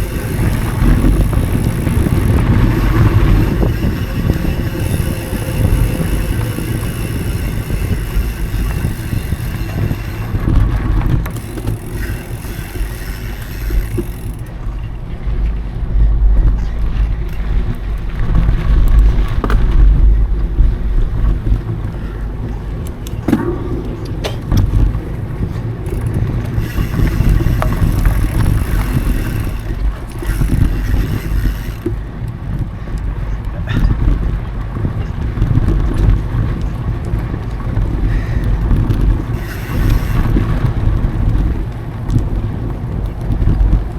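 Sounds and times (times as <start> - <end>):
bike knocks: 0.0 - 14.5, 18.2 - 32.0
bike tyres rumbling on dirt: 0.0 - 43.9
wind buffeting microphone: 0.0 - 43.9.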